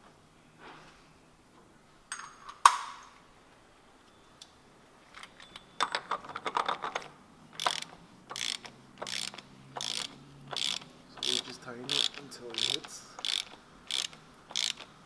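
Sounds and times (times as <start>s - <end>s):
ratchet wrench clicking: 7.6s - 15.0s.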